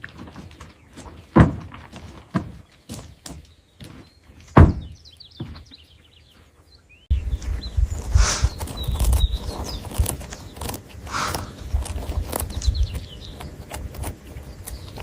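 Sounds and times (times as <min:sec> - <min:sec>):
sharp knocks and thumps: 0:00.0 - 0:05.8.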